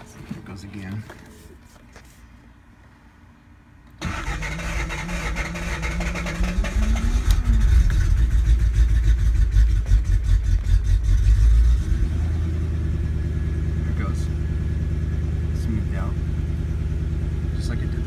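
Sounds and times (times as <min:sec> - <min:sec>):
car engine starting and idling: 0:03.9 - 0:18.0.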